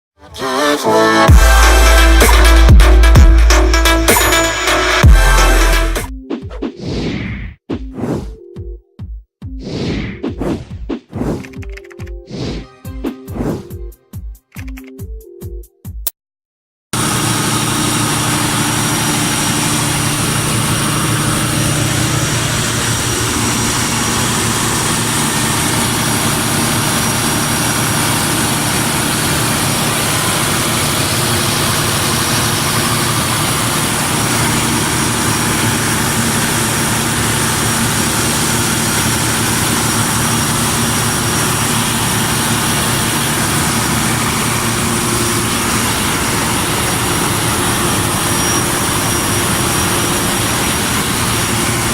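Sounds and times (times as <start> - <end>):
diesel generator engine drone: 0.5 - 6.1, 17.0 - 51.9.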